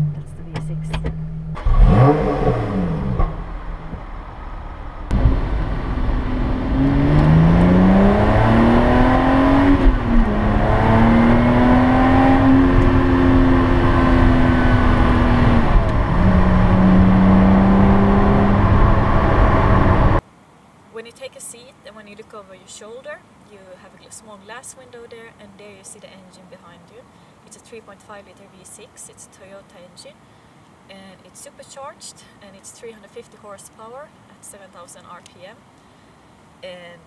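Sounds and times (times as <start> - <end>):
car engine accelerating from cabin: 0.0 - 20.2
car engine revving: 0.0 - 20.2.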